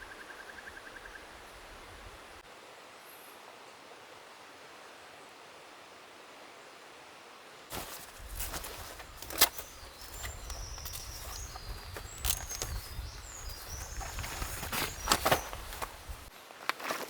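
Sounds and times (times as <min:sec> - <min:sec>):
small birds singing: 0:07.7 - 0:16.3.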